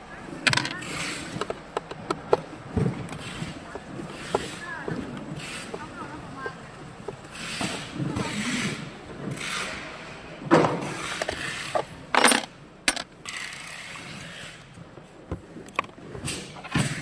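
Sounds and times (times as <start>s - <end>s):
parts clicking and rattling: 0.4s - 8.3s, 10.9s - 14.7s.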